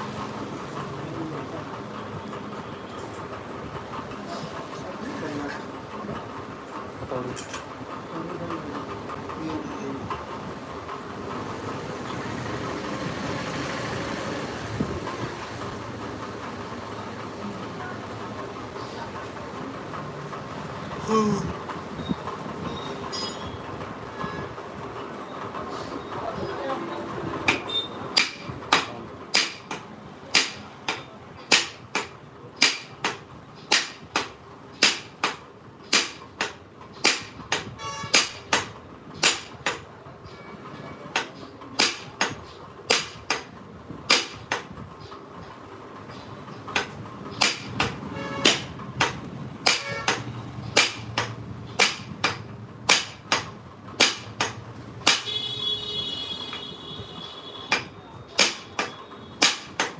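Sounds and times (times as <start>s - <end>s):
hammer striking metal: 23.1s - 23.6s, 27.5s - 39.9s, 41.1s - 43.5s, 44.1s - 44.7s, 46.7s - 55.4s, 57.7s - 59.9s.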